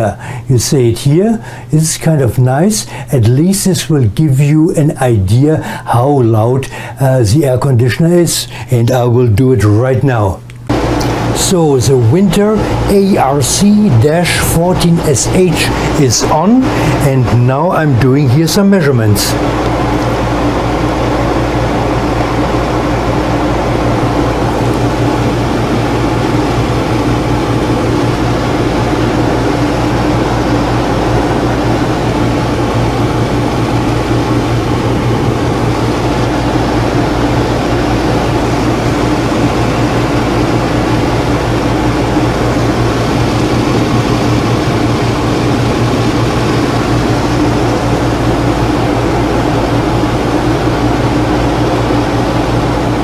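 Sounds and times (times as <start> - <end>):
air conditioner humming: 0.0 - 53.0
rush of air: 15.7 - 16.0, 16.6 - 17.1.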